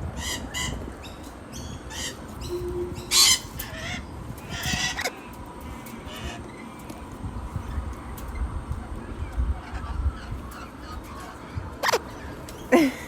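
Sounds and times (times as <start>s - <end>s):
birds squawking harshly: 0.0s - 6.8s.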